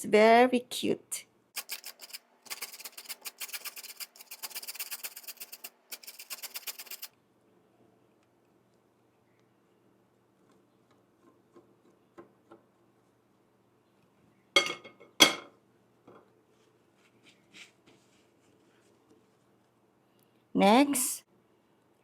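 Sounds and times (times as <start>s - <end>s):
kitchenware clinking: 14.6s - 15.6s.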